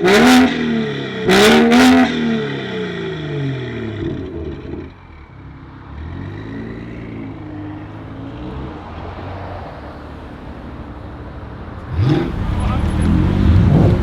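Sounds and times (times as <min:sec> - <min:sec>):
car engine running at low revs: 0:11.0 - 0:14.0.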